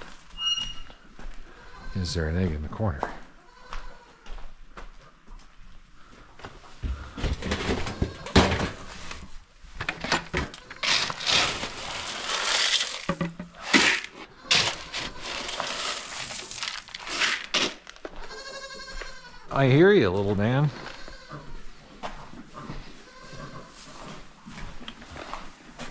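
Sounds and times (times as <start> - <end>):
goat bleating: 3.4 - 4.3, 18.0 - 19.6, 20.6 - 21.6
grain feed pouring into pans: 10.8 - 18.0.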